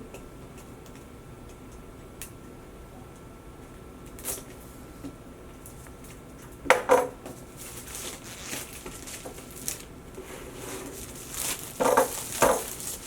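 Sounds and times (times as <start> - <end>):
plastic rustling: 7.4 - 13.0
plastic shrink-wrap being cut: 7.6 - 9.9, 10.8 - 13.0.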